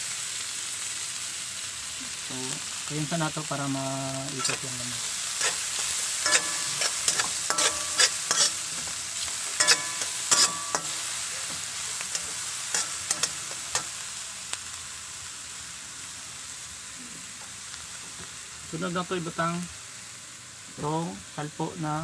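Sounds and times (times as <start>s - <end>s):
vegetables sizzling in butter: 0.0s - 22.0s
metal spatula scraping pan: 4.4s - 4.8s, 5.4s - 8.9s, 9.5s - 13.9s.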